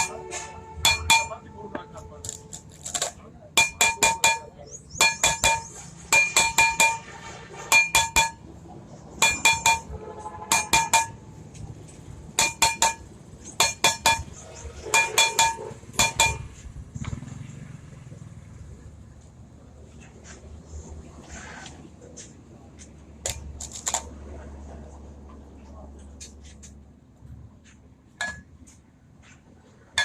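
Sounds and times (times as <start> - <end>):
hammer striking metal: 0.0 - 8.5, 9.1 - 11.3, 12.3 - 16.6, 28.2 - 28.5.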